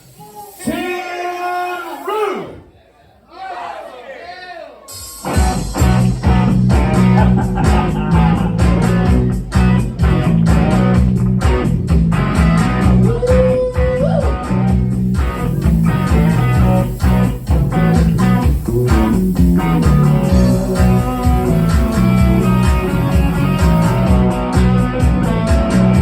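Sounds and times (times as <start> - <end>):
drums: 4.8 - 26.0
bass: 5.3 - 26.0
electric guitar: 5.3 - 26.0.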